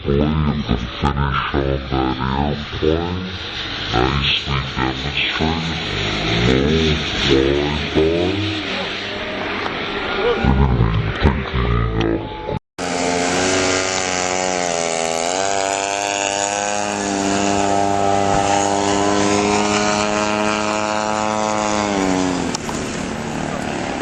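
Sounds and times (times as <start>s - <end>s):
model airplane engine and propeller: 12.8s - 24.0s.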